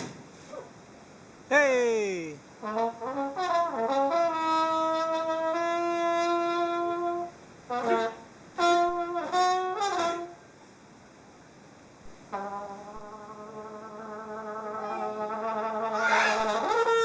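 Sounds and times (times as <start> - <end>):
brass horn playing solo: 2.6 - 10.3, 13.6 - 17.0.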